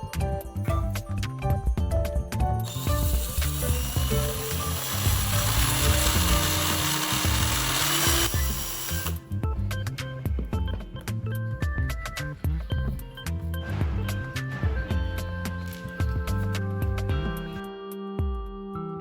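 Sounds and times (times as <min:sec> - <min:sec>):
background music with bass line: 0:00.0 - 0:04.5, 0:05.1 - 0:19.0
crackling hiss of metalworking: 0:02.6 - 0:09.2.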